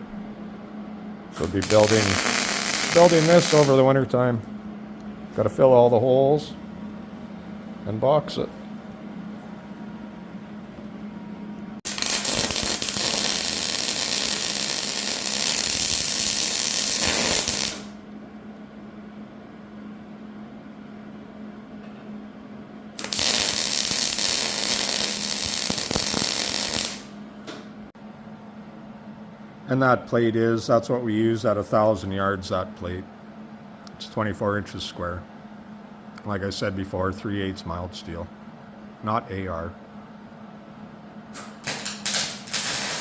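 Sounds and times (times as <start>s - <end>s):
arc welding crackling: 1.4s - 4.0s, 11.9s - 18.0s, 23.0s - 27.2s, 41.4s - 43.0s.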